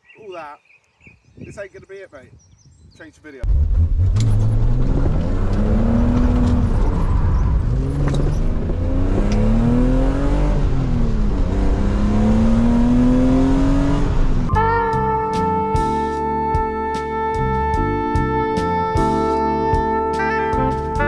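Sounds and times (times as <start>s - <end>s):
car engine accelerating: 3.4s - 14.5s.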